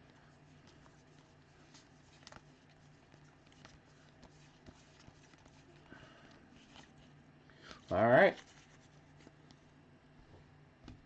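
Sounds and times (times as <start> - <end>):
trading cards clicking and rustling: 0.0 - 7.1
low steady hum: 0.0 - 11.0.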